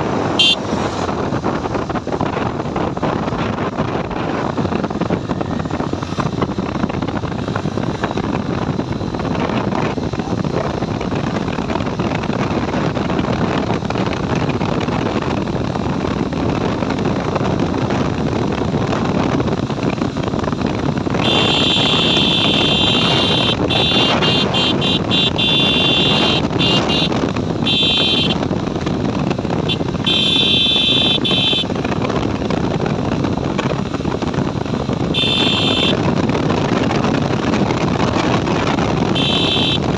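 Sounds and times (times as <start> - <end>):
motorcycle wind and road noise: 0.0 - 39.9
high-pitched horn honking: 0.4 - 0.6, 21.2 - 28.4, 29.7 - 31.7, 35.1 - 36.0, 39.1 - 39.9.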